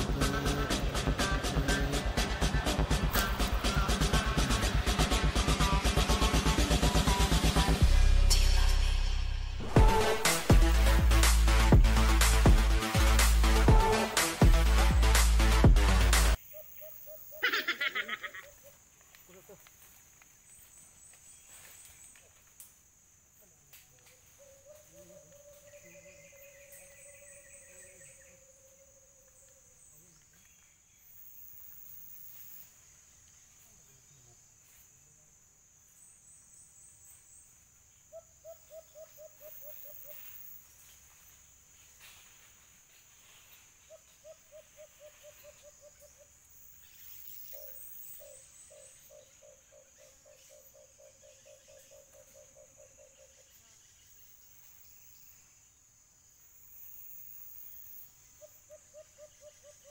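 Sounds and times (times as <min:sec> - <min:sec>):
high insect drone: 0:00.0 - 0:59.9
dove hooting: 0:38.1 - 0:40.4, 0:43.8 - 0:46.3, 0:47.4 - 0:53.5, 0:58.4 - 0:59.9.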